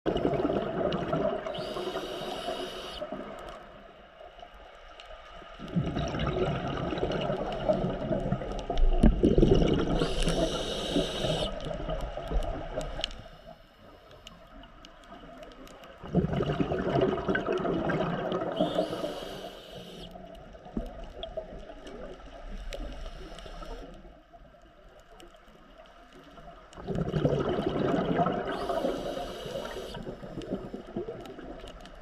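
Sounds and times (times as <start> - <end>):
gurgling exhaled bubbles: 0.1 - 3.6, 5.6 - 13.1, 16.0 - 23.9, 26.7 - 32.0
regulator inhalation hiss: 1.6 - 3.1, 9.9 - 11.6, 18.5 - 20.2, 23.0 - 23.9, 28.5 - 30.3.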